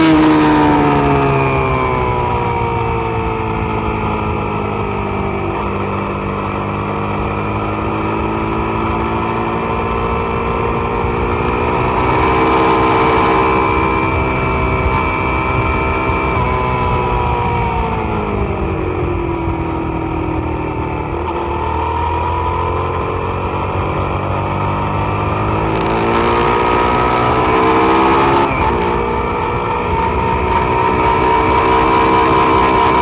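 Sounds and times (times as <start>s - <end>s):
motorcycle engine at speed: 0.0s - 33.0s
wind rush: 10.2s - 22.2s.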